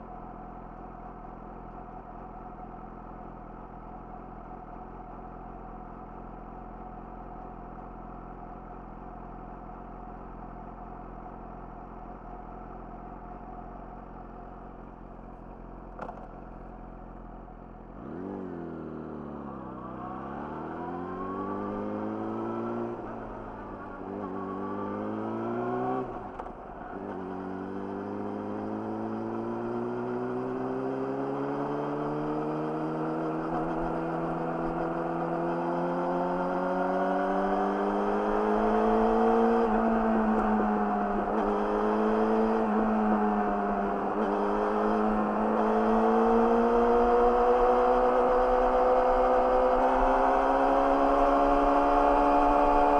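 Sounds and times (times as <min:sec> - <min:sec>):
motorcycle engine revving: 0:17.9 - 0:52.9.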